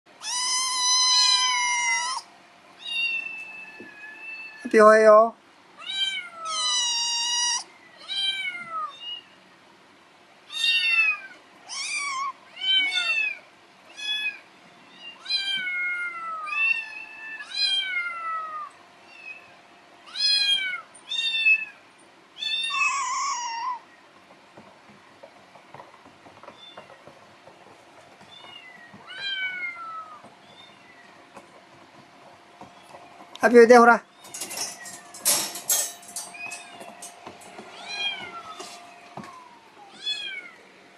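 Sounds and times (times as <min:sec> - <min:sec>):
kitten meowing: 0:00.2 - 0:04.7, 0:05.8 - 0:09.3, 0:10.5 - 0:13.4, 0:22.4 - 0:23.8, 0:39.3 - 0:40.6.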